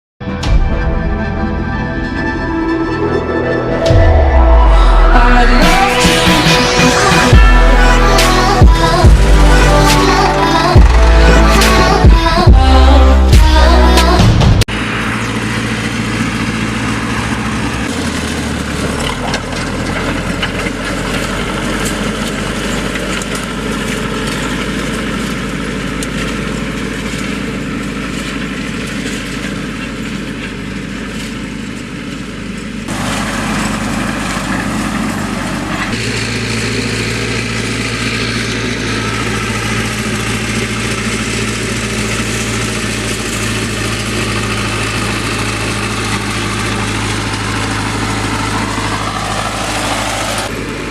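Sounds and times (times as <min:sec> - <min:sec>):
harsh noise: 0:00.2 - 0:18.0, 0:35.8 - 0:50.6
tractor diesel engine idling: 0:01.5 - 0:50.9.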